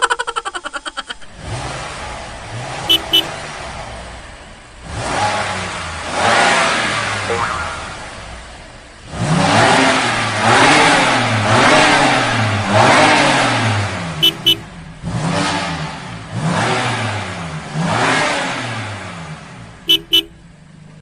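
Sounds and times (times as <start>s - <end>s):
vehicle engine revving: 1.2s - 21.0s
short high beeps: 7.3s - 8.1s.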